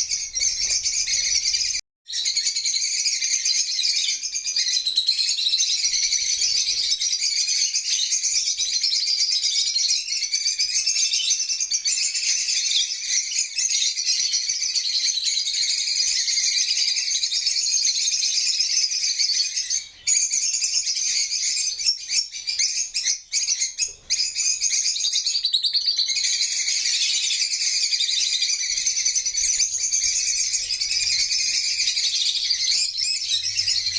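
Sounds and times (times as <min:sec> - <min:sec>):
parrots chirping and chattering: 0:00.0 - 0:08.1, 0:18.1 - 0:33.9.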